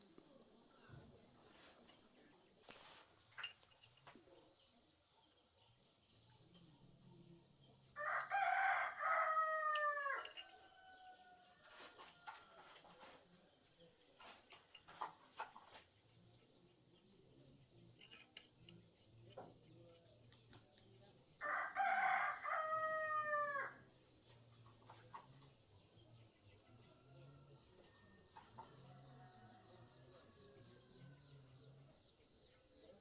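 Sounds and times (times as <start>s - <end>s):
rooster crowing: 8.0s - 12.4s, 21.4s - 23.8s.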